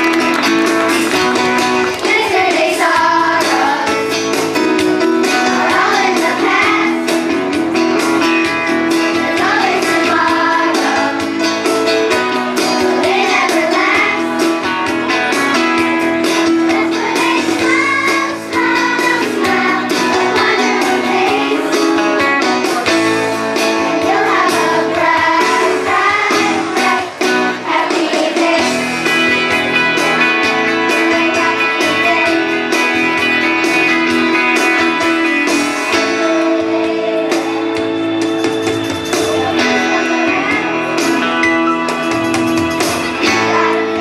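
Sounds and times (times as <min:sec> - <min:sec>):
guitar accompaniment: 0:00.0 - 0:44.0
children's chorus singing: 0:01.8 - 0:04.2, 0:05.4 - 0:07.4, 0:09.0 - 0:11.4, 0:12.6 - 0:14.4, 0:16.5 - 0:29.0, 0:30.0 - 0:32.5, 0:35.5 - 0:38.1, 0:43.0 - 0:44.0.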